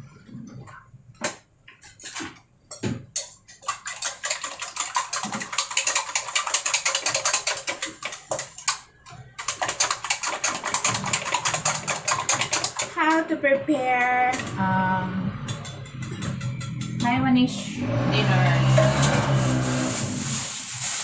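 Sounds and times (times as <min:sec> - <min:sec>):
utensil beating eggs in a bowl: 0:03.1 - 0:13.3.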